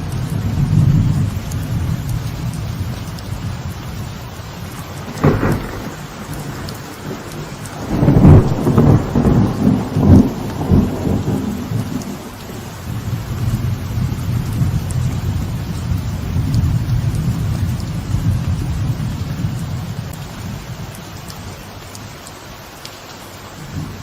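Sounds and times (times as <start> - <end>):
rolling thunder rumble: 0.0 - 21.6
light rain on veranda: 0.0 - 24.0
thunder crack: 4.9 - 15.5.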